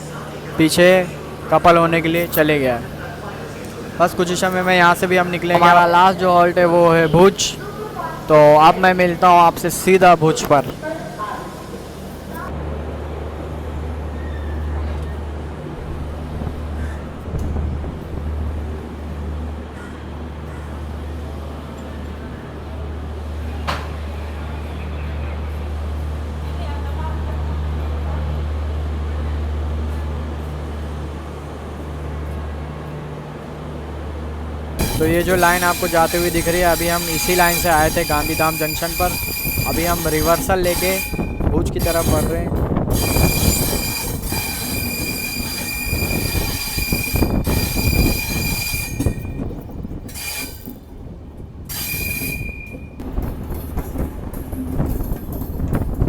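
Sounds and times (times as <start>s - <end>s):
passenger train rumbling: 0.0s - 56.0s
train wheels squealing on rails: 14.1s - 15.3s, 34.8s - 50.9s, 51.7s - 53.0s.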